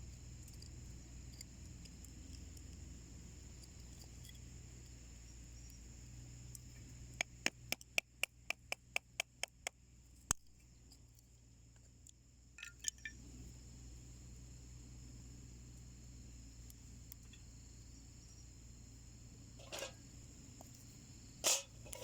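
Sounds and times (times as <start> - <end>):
wood fire burning in a stove: 0.0 - 22.0
high insect chirring: 13.6 - 22.0.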